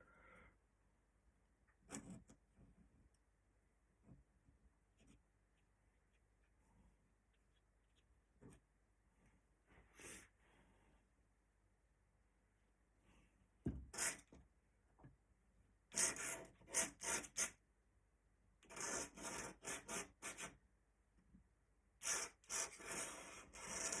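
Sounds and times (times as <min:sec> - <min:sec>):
pen scratching on paper: 0:14.0 - 0:14.3, 0:15.9 - 0:17.6, 0:18.7 - 0:20.6, 0:22.0 - 0:24.0.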